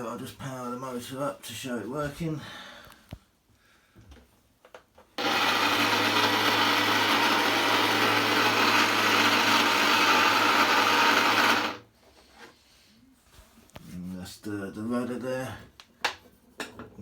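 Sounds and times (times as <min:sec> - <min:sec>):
electric motor whirring: 0:05.2 - 0:11.8.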